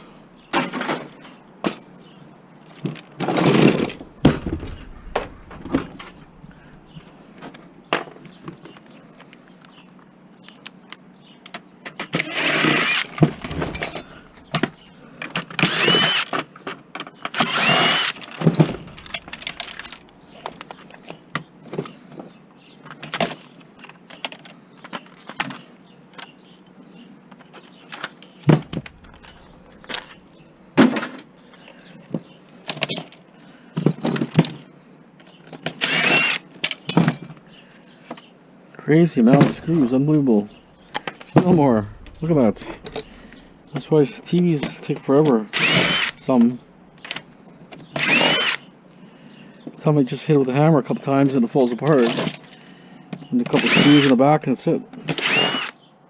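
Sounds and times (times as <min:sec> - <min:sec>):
screws and parts clattering: 0:02.7 - 0:06.2, 0:12.8 - 0:16.4, 0:17.2 - 0:21.0
power driver whirring: 0:12.2 - 0:14.9, 0:15.5 - 0:16.4, 0:17.4 - 0:20.8, 0:28.5 - 0:30.4, 0:35.8 - 0:36.4, 0:41.4 - 0:43.8, 0:45.5 - 0:47.2, 0:47.9 - 0:48.7, 0:53.6 - 0:54.2, 0:55.1 - 0:55.8.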